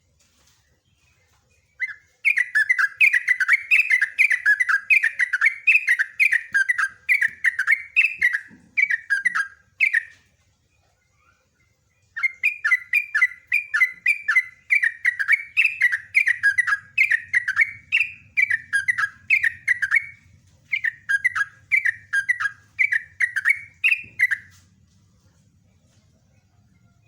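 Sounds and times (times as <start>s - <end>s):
bird singing bubbling notes: 12.0s - 24.5s.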